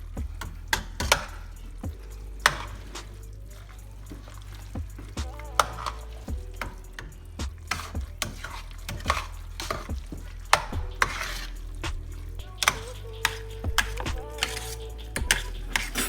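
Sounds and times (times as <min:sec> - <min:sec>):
utensil clacking in pan: 0:02.4 - 0:03.2.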